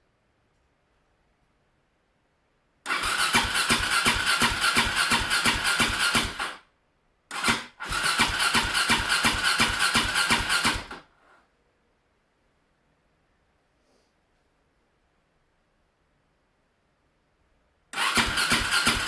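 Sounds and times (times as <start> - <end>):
electric starter cranking engine: 2.9 - 6.6, 7.3 - 11.0, 18.0 - 19.0.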